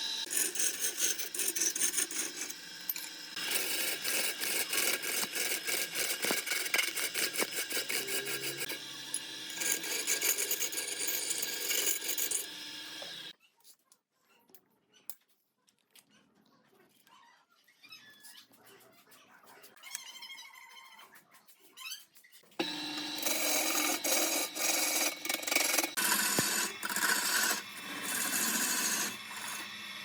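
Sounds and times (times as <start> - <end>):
lathe tool rasping wood: 0.0 - 13.3, 22.6 - 30.0.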